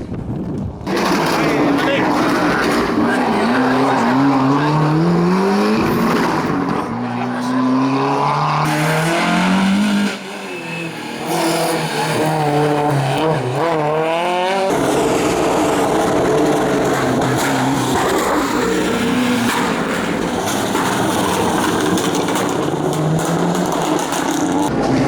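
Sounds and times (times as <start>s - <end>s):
rally car engines revving: 0.7s - 25.0s.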